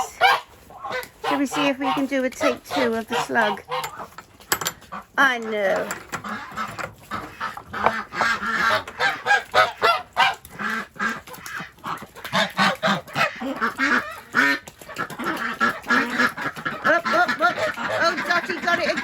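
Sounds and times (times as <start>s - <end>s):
ducks quacking: 0.0s - 19.0s.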